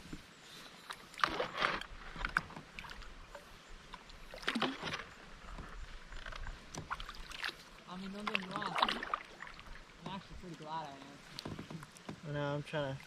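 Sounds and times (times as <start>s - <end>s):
paddle splashes: 0.0s - 13.0s
paddle knocking against kayak: 1.2s - 7.5s, 8.1s - 10.5s, 11.3s - 12.4s.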